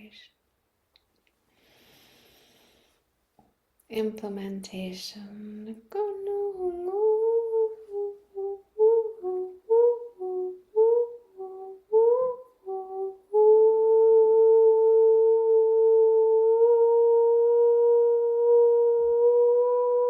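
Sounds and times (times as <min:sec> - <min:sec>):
person humming: 0:05.2 - 0:20.0.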